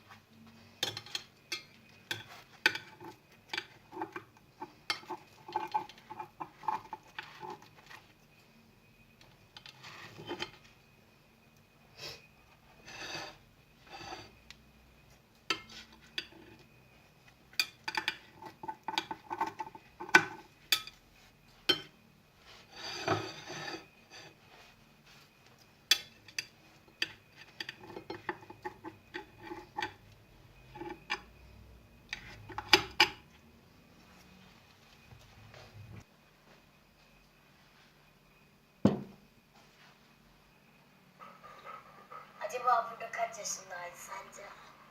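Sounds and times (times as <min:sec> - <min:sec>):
cutlery and dishes clinking: 0:00.8 - 0:08.0, 0:09.6 - 0:10.6, 0:17.5 - 0:21.0, 0:21.6 - 0:22.0, 0:25.9 - 0:30.0.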